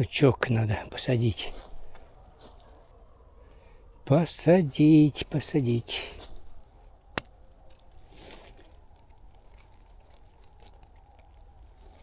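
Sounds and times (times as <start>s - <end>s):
rustling and handling noise: 1.4s - 3.2s, 4.5s - 12.0s.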